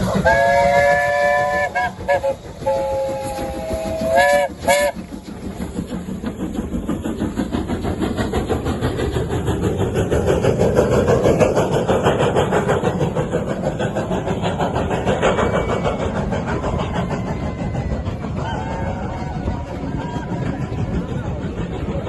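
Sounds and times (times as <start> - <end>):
train clattering on rails: 0.0 - 22.0.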